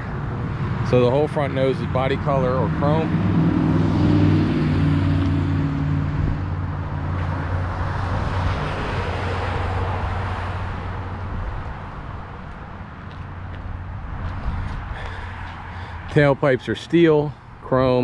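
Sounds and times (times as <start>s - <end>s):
road noise rushing: 0.0s - 18.0s
vehicle engine hum: 0.0s - 18.0s.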